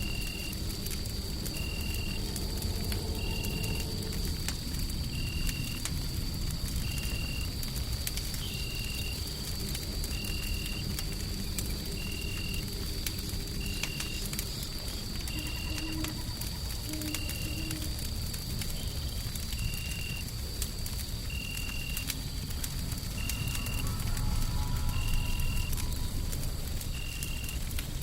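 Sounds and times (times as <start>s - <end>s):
wood fire crackling and popping: 0.0s - 28.0s.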